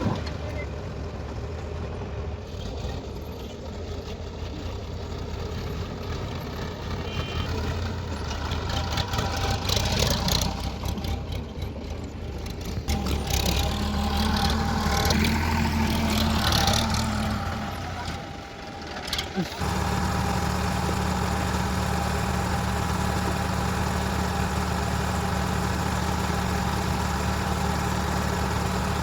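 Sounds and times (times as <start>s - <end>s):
heavy diesel engine running: 0.0s - 29.0s
rough scraping and rushing: 7.6s - 21.5s.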